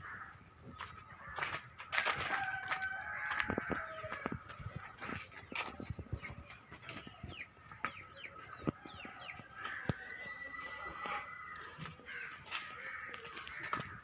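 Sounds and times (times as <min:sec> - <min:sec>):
bird chirping: 0:03.8 - 0:12.1, 0:13.2 - 0:14.0.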